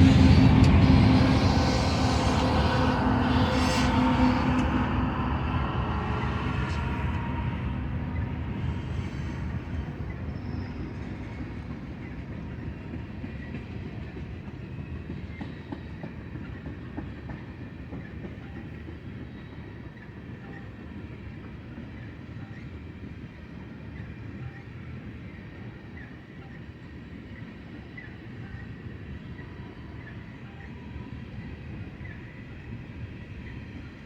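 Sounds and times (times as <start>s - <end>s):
freight train rumbling past: 0.0s - 34.0s.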